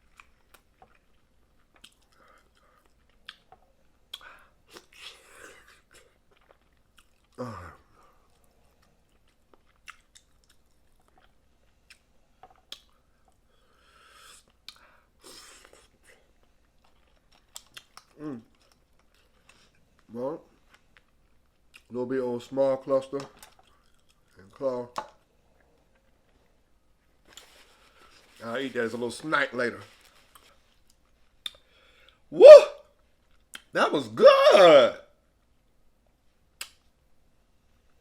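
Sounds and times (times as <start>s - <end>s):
chewing and sucking crab meat: 0.0s - 21.9s, 23.3s - 24.6s
short falling vocal sound: 32.4s - 32.8s, 34.2s - 35.0s.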